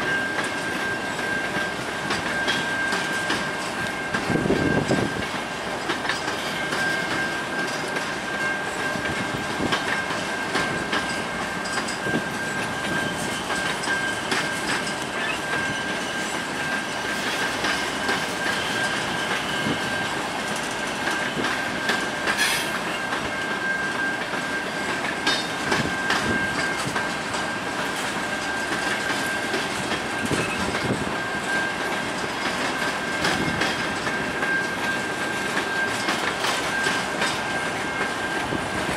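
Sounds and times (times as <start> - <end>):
freight train wheels clacking: 0.0 - 38.9
high-pitched wheel squeal: 10.3 - 27.2.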